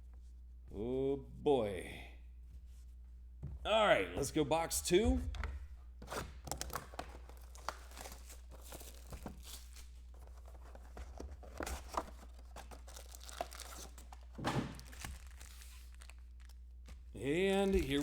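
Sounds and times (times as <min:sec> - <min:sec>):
packaging tearing and crinkling: 0:06.1 - 0:16.6, 0:17.4 - 0:18.0.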